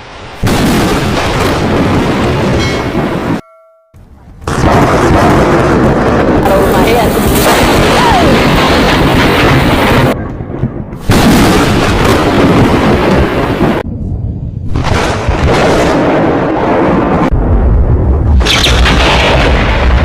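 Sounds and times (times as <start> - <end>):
thunder rumbling: 0.3 - 3.4, 4.1 - 20.0
thunder crack: 0.4 - 3.4, 4.4 - 13.9, 14.6 - 20.0.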